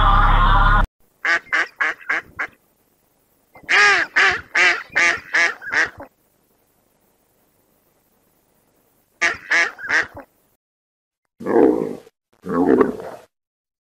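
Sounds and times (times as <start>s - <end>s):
animal calling: 3.6s - 6.1s, 9.2s - 10.3s.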